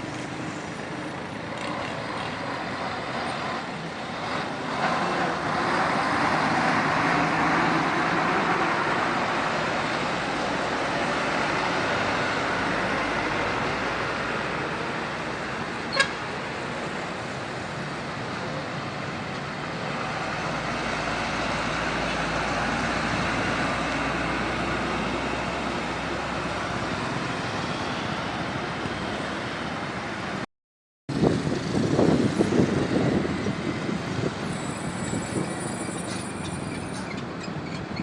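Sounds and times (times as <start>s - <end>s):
truck engine passing close by: 0.0s - 16.5s, 17.1s - 30.4s
highway traffic passing: 0.0s - 30.5s, 31.1s - 38.0s.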